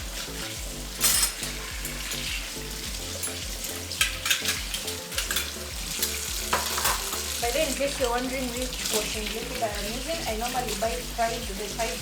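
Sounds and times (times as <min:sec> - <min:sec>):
soft background music: 0:00.0 - 0:12.0
dishes clinking: 0:01.0 - 0:02.4, 0:04.0 - 0:07.3.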